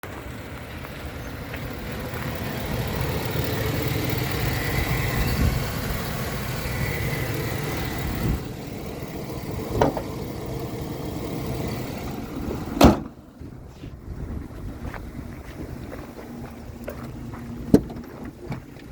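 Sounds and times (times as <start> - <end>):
truck engine running: 0.0 - 18.9
loud thump: 12.8 - 13.2.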